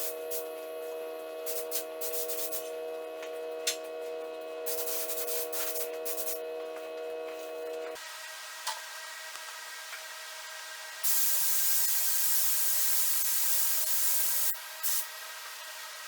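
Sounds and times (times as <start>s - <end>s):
spray gun hissing: 0.0s - 0.5s, 1.4s - 2.7s, 4.7s - 6.4s, 11.0s - 15.1s
steady hum: 0.0s - 8.0s.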